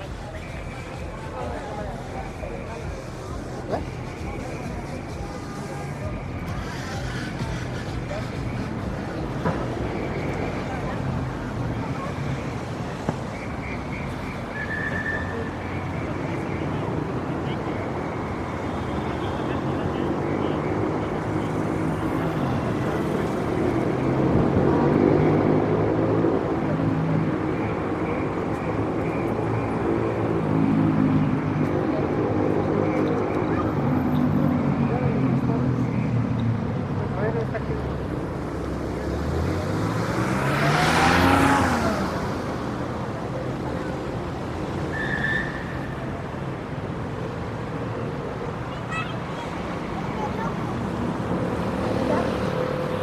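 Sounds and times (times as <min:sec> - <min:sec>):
vehicle engine running close by: 0:00.0 - 0:12.9
city street traffic: 0:00.0 - 0:53.0
vehicle passing by: 0:37.0 - 0:44.5, 0:49.5 - 0:53.0.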